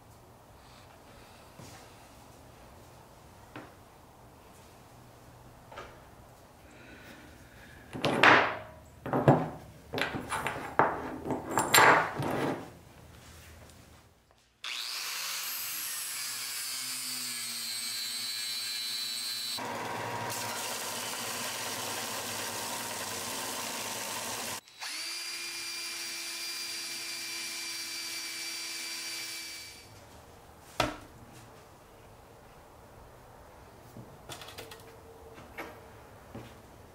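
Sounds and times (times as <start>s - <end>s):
belt sander running: 14.7s - 29.4s.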